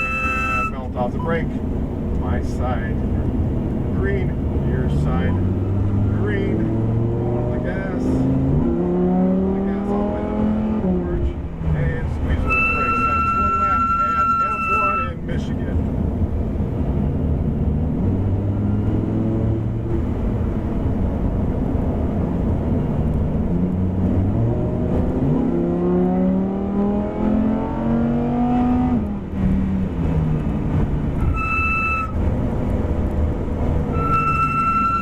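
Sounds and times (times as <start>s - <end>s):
high beep: 0.0s - 1.4s, 12.4s - 15.2s, 31.2s - 32.1s, 34.0s - 35.0s
car engine accelerating through gears: 2.9s - 12.4s, 15.8s - 35.0s.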